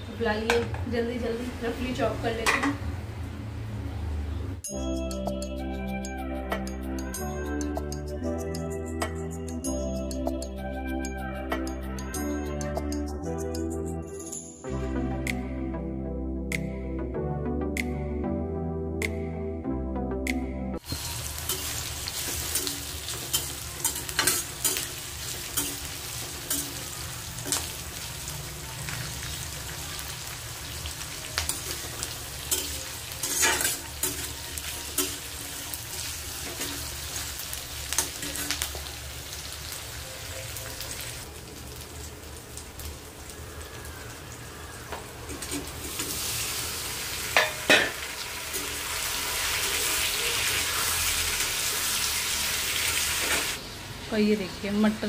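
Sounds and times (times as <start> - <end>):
onions sizzling in oil: 20.8 - 55.0
spatula scraping and clicking on pan: 32.5 - 34.3.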